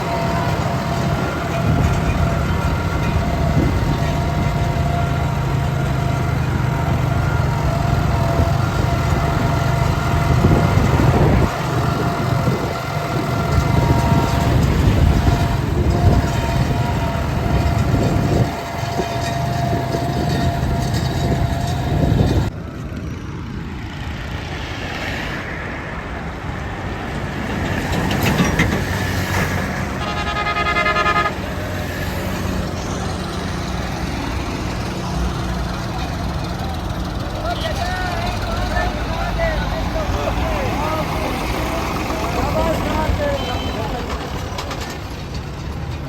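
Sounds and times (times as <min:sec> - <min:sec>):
tractor engine under load: 0:00.0 - 0:24.7, 0:26.0 - 0:46.0
horn: 0:30.0 - 0:31.6.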